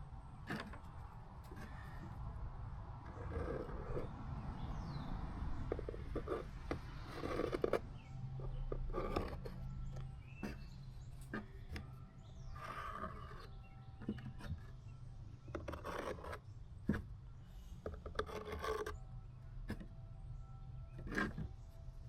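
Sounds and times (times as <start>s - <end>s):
hand tool scraping plastic: 0.4s - 2.2s, 3.1s - 4.1s, 5.6s - 19.0s, 20.9s - 21.7s.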